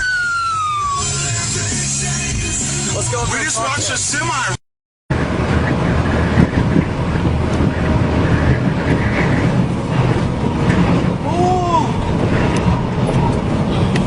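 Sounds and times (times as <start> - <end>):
high rising and falling tone: 0.0 - 2.9
heavy truck traffic rumble: 0.0 - 14.0
wind buffeting microphone: 5.1 - 14.0.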